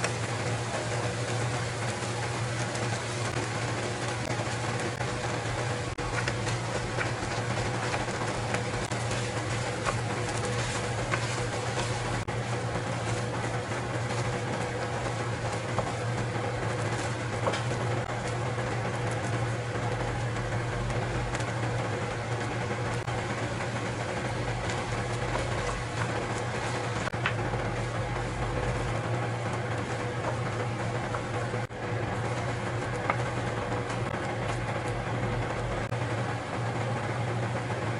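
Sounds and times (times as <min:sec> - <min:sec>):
machine hum: 0:00.0 - 0:37.9.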